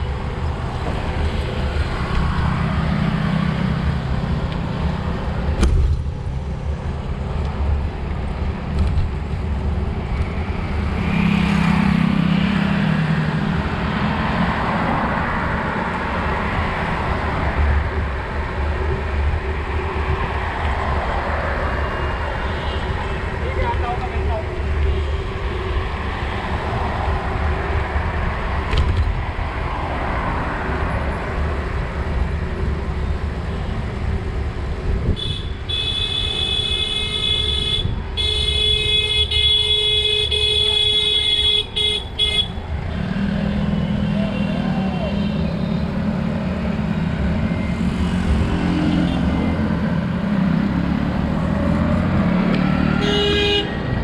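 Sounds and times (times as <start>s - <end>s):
wind and road noise rumble: 0.0s - 54.0s
vehicle horn blast: 35.2s - 42.6s, 52.9s - 53.8s.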